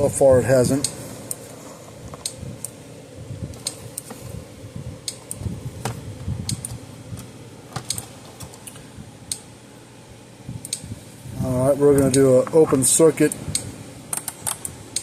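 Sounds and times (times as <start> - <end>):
electric fence energizer ticking: 0.0 - 1.4, 4.8 - 9.7, 10.4 - 15.0.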